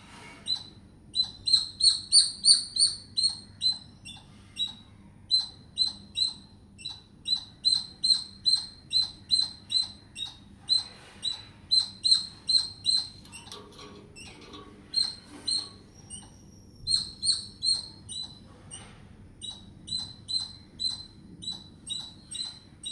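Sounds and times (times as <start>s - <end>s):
squirrel chirping: 0.5s - 13.6s, 14.2s - 18.4s, 19.4s - 22.9s.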